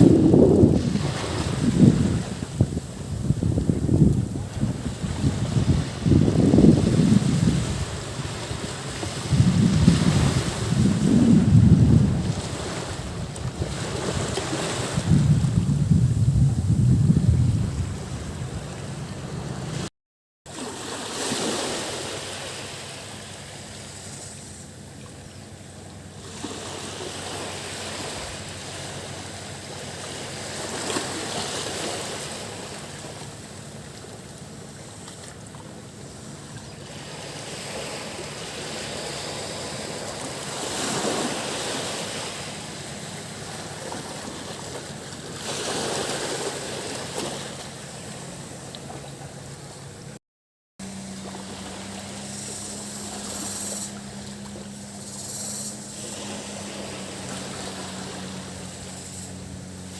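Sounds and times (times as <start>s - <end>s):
sea waves breaking on beach: 0.0s - 19.9s, 20.5s - 50.2s, 50.8s - 59.9s
cicadas droning: 21.7s - 50.1s, 50.8s - 59.9s.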